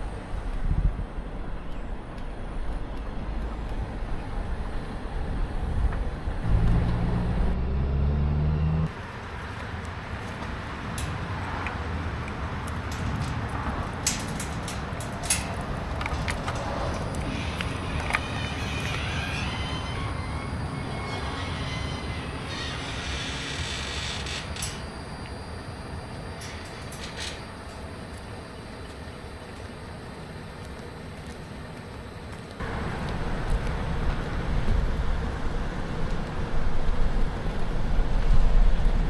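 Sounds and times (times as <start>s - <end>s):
loud low hum: 0.0s - 8.9s
vehicle road noise rumble: 0.0s - 39.0s.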